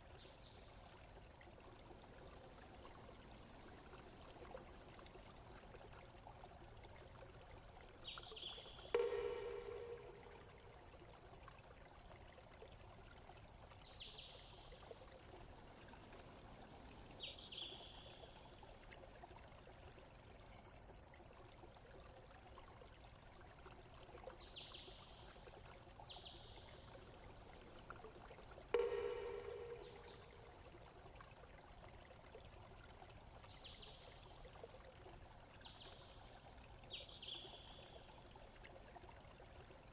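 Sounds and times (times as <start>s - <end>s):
water trickling: 0.0s - 39.9s
louder pitched note: 9.0s - 10.6s.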